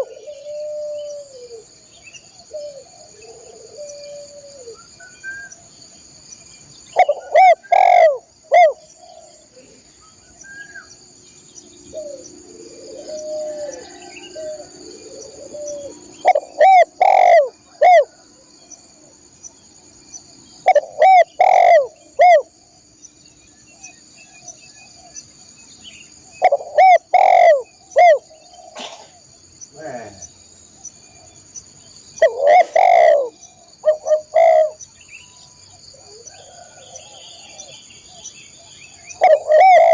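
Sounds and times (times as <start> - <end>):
dove cooing: 0.0 - 1.8, 2.4 - 5.0, 7.0 - 9.9, 11.8 - 18.3, 20.6 - 22.5, 26.4 - 29.2, 32.2 - 34.8, 35.9 - 37.8, 39.1 - 39.9
high insect drone: 0.0 - 39.9.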